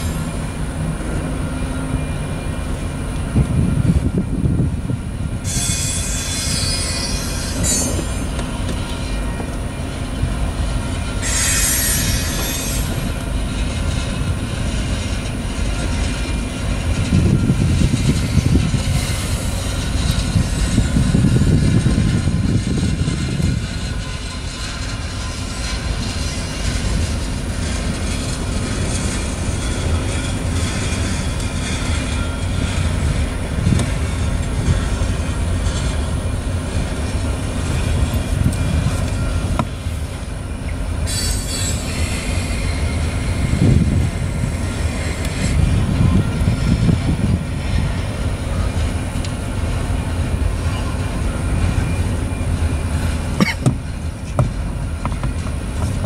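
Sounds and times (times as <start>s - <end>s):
train wheels rumbling on rails: 0.0s - 56.0s
high squeal: 5.4s - 9.4s, 10.8s - 13.2s, 41.0s - 47.0s.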